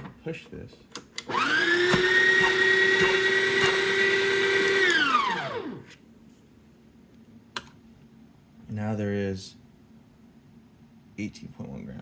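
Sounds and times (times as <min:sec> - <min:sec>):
grinder motor whining: 0:01.3 - 0:05.8.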